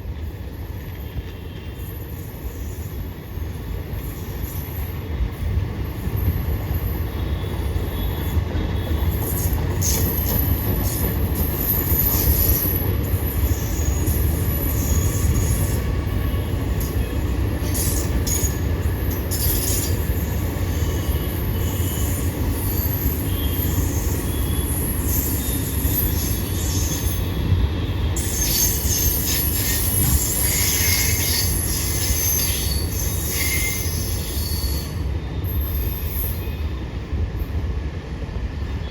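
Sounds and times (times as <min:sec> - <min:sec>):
train rumbling on rails: 0:00.0 - 0:38.9
high-pitched wheel squeal: 0:28.1 - 0:36.6.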